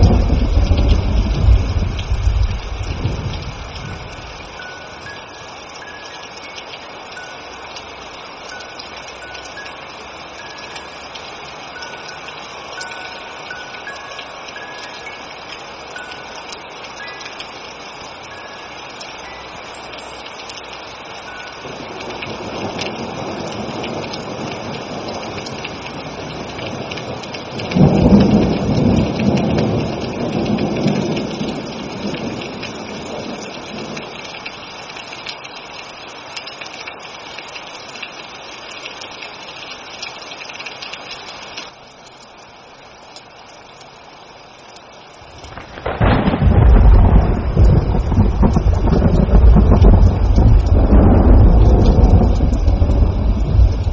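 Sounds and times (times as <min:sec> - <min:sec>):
loud thunder: 0:00.0 - 0:04.4, 0:27.7 - 0:31.2, 0:45.4 - 0:53.9
steady rain: 0:00.0 - 0:53.9.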